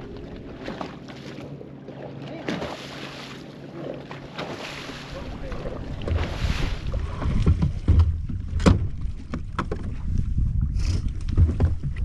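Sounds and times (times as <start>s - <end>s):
water slapping against boat hull: 0.0s - 12.0s
small knocks on hull: 6.9s - 10.2s, 11.1s - 12.0s.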